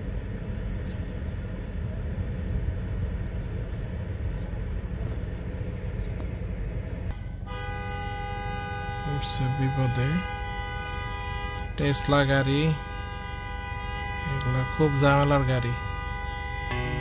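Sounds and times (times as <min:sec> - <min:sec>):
steady multi-pitch tone: 0:16.2 - 0:17.0
car engine running: 0:16.3 - 0:17.0.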